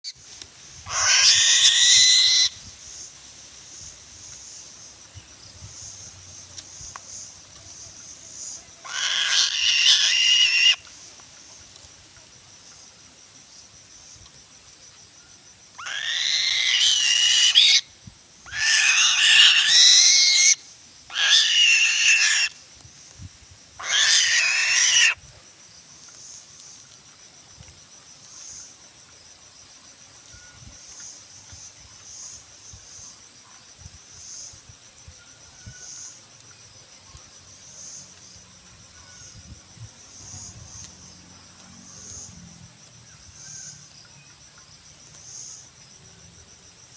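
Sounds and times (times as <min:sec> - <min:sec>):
insects chirring: 0:00.0 - 0:46.9
eagle screeching: 0:00.9 - 0:02.6, 0:08.8 - 0:10.8, 0:15.8 - 0:17.9, 0:18.5 - 0:22.6, 0:23.8 - 0:25.2.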